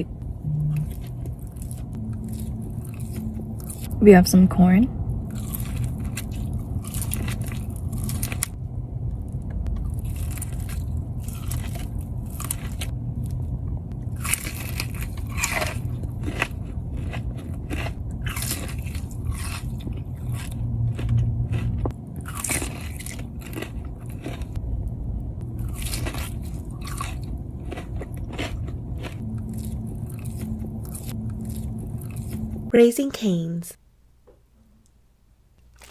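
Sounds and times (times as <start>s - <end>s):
low hum: 0.0s - 35.9s
biting and chewing corn: 5.3s - 8.6s, 9.8s - 13.4s, 14.1s - 24.6s, 25.6s - 32.6s.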